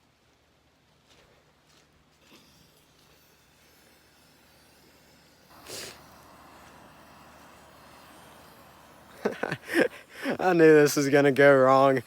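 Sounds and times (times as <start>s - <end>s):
flame hissing: 2.4s - 12.0s
torch lighting whoosh: 5.4s - 11.0s.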